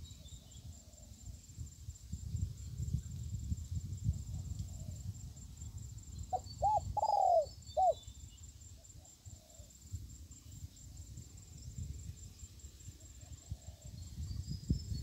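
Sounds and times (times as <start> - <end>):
bird calling arched notes: 6.4 - 8.1.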